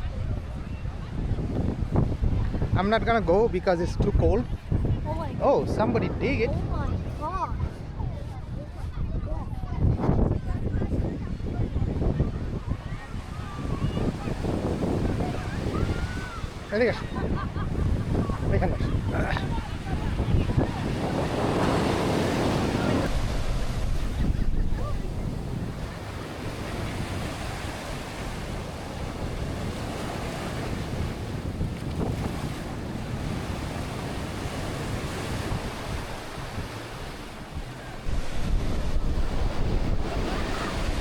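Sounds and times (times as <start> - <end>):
wind buffeting microphone: 0.0 - 41.0
ocean surf washing onto beach: 10.6 - 41.0.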